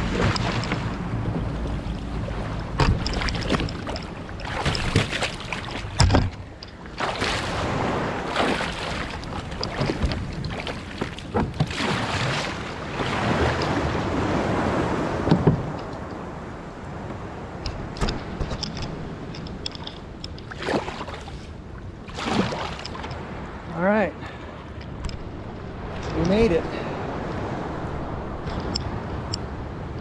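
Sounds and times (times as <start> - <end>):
wind noise on microphone: 0.0 - 6.5
sharp knocks against hull: 0.0 - 13.8, 15.2 - 16.0, 17.0 - 19.0
surf washing: 0.0 - 30.0
water splashing around kayak: 0.0 - 30.0.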